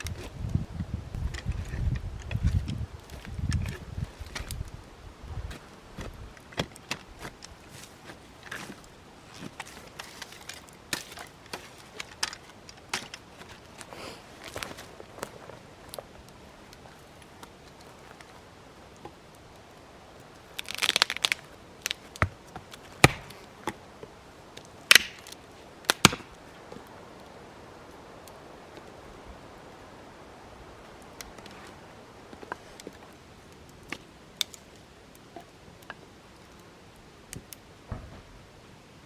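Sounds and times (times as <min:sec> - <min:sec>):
sharp wood cracks: 0:00.0 - 0:04.8, 0:05.4 - 0:23.8, 0:24.5 - 0:27.0
dry wood snapping: 0:01.2 - 0:04.8, 0:05.5 - 0:23.8, 0:24.5 - 0:26.9, 0:33.6 - 0:36.6.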